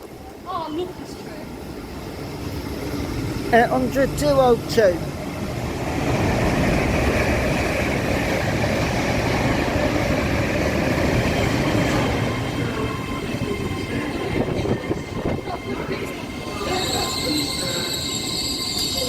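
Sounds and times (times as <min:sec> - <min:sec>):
train passing on track: 0:00.0 - 0:19.0.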